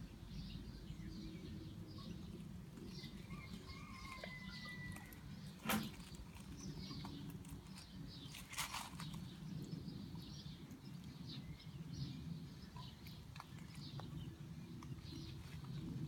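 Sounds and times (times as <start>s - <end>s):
short rustling: 7.4s - 9.3s.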